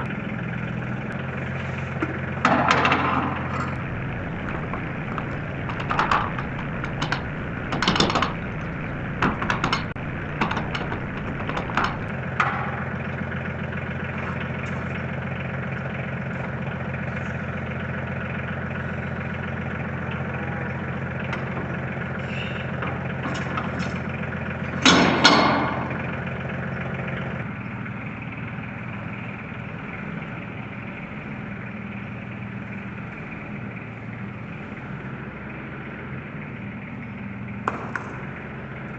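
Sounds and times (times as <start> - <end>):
tractor engine running: 0.0 - 38.9
metallic clanks and knocks: 2.4 - 12.9, 24.8 - 26.1.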